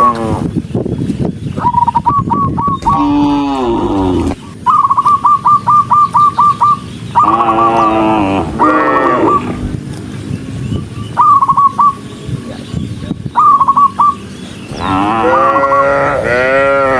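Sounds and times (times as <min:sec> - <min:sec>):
bird calling rapid notes: 0:01.5 - 0:09.5, 0:11.0 - 0:12.1, 0:13.3 - 0:14.3
cattle mooing: 0:02.8 - 0:04.4, 0:07.2 - 0:09.6, 0:14.7 - 0:16.9.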